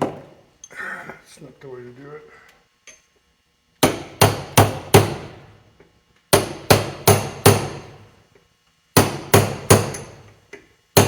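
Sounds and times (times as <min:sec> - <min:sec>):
hammer striking metal: 0:06.3 - 0:07.9, 0:09.0 - 0:10.2.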